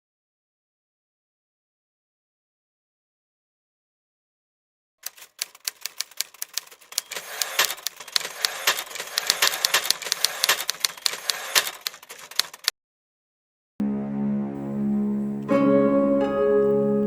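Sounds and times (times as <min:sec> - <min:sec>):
rapid clicking and clatter: 0:05.0 - 0:12.7.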